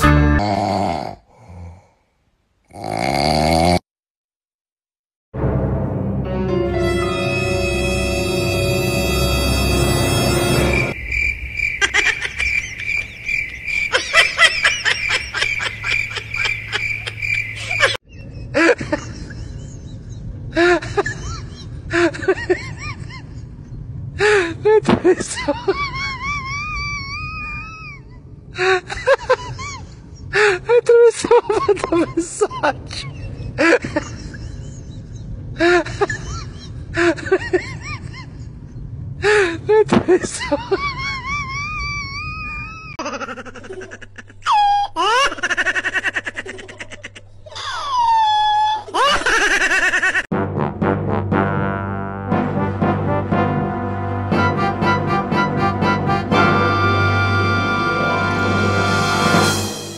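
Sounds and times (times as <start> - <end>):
crickets chirping: 10.2 - 18.0.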